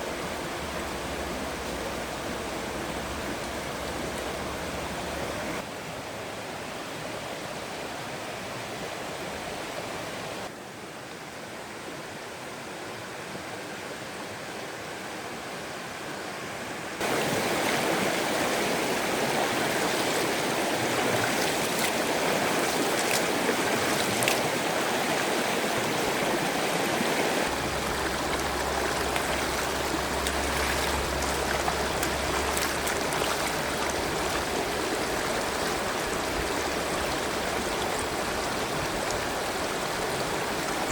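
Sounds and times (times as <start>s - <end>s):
stream water running over rocks: 0.0s - 5.7s, 16.9s - 40.9s.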